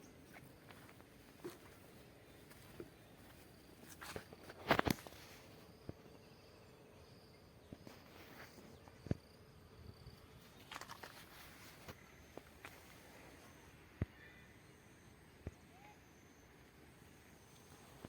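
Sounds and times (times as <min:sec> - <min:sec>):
insects chirping: 0:00.0 - 0:18.0
footsteps on dry ground and plants: 0:00.2 - 0:05.5.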